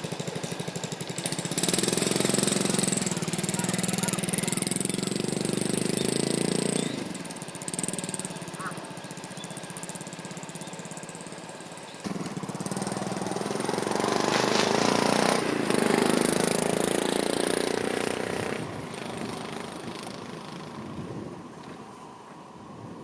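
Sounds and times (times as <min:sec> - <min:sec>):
motorcycle engine running: 0:00.0 - 0:21.9.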